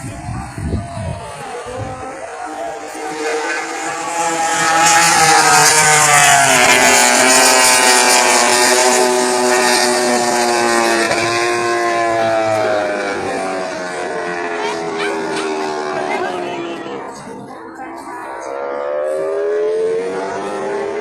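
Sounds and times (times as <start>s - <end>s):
racing motorcycle engines revving: 0.0s - 21.0s.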